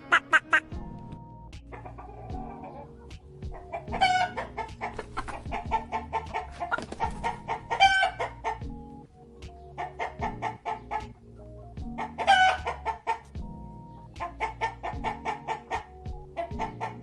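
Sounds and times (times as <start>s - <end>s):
fowl clucking: 0.0s - 0.7s, 1.7s - 8.7s, 9.7s - 11.2s, 12.0s - 13.3s, 14.2s - 17.0s.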